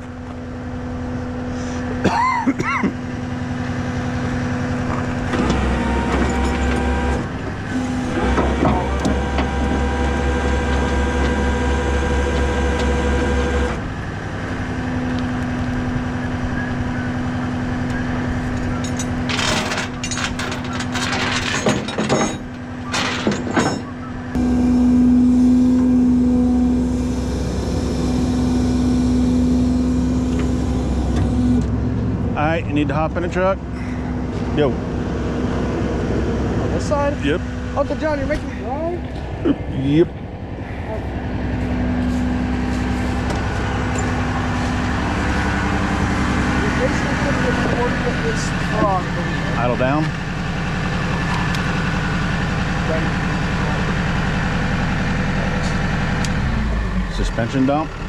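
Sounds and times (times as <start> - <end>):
hydraulic pump hum: 0.0 - 58.0
tow truck engine idling: 0.0 - 58.0
metal clanks and rattles: 18.5 - 24.0.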